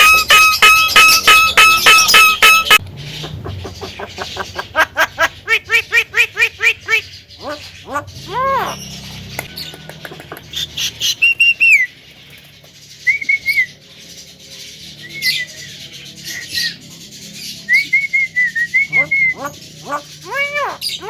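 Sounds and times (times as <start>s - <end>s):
bird whistling calls: 0.0s - 12.0s, 13.0s - 13.8s, 15.0s - 21.0s
bird clicks and chirps: 9.0s - 11.7s.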